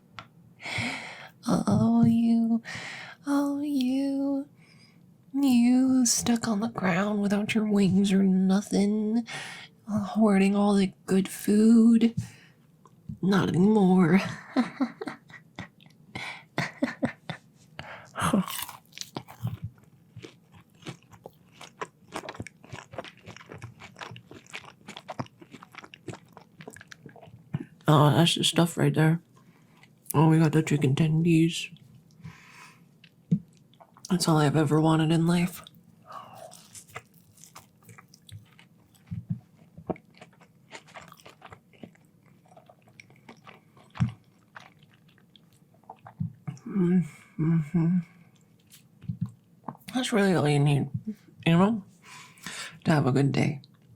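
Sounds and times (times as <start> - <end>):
person chewing crunchy food: 17.9 - 27.8, 29.4 - 30.1, 35.6 - 46.5.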